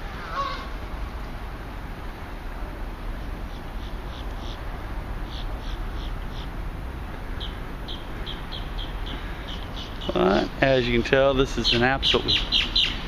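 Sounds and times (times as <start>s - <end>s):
steady background noise: 0.0s - 13.0s
small bird chirping: 5.2s - 6.5s, 7.4s - 10.4s, 11.6s - 13.0s.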